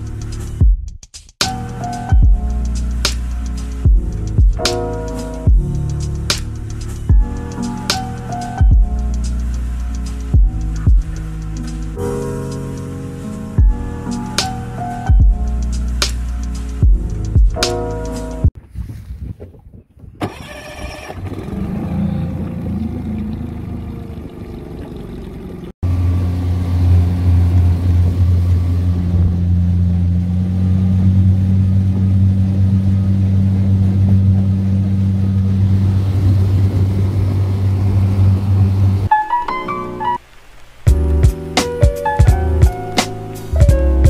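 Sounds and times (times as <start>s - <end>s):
wind noise: 18.6s - 25.7s, 26.6s - 39.1s
water noise: 19.4s - 44.0s
outboard motor running: 20.3s - 39.1s.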